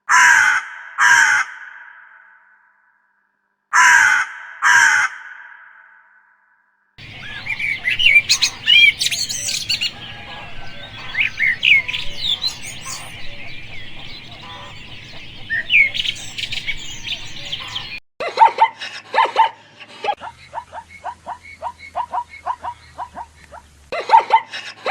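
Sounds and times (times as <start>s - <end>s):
small birds chirping: 7.0s - 18.0s.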